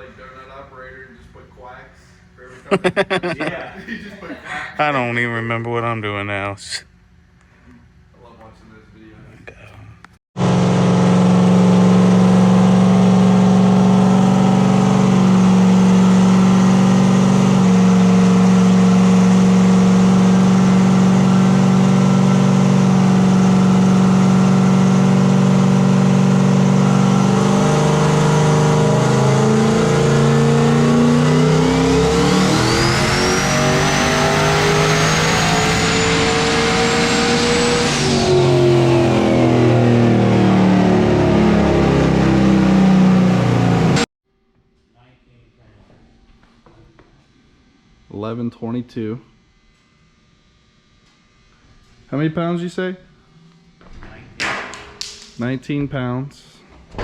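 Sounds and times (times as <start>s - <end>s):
truck engine revving: 10.4s - 44.1s
turbo whine: 10.4s - 44.1s.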